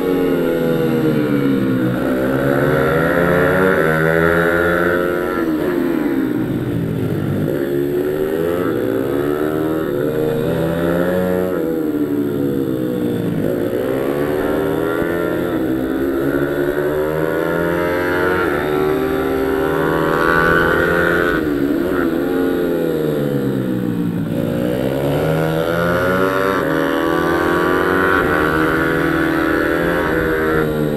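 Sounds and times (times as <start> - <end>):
pit bike engine revving: 0.0 - 30.9.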